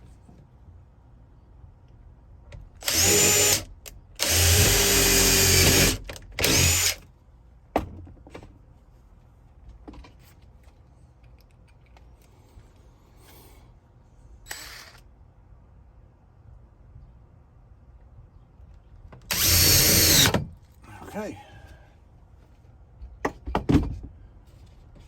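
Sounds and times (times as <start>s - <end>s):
cordless drill running: 2.8s - 7.0s, 14.5s - 15.0s, 19.3s - 20.4s.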